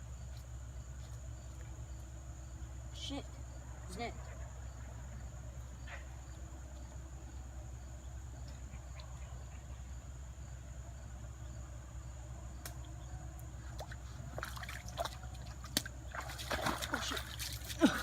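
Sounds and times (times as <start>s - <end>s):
creek water trickling: 12.6s - 18.0s
sharp clicks and splashy knocks: 13.8s - 17.8s.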